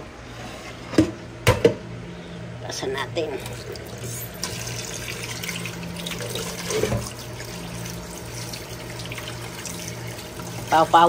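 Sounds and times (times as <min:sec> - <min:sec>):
steady low hum: 0:00.0 - 0:11.0
tap water running into sink: 0:03.4 - 0:11.0.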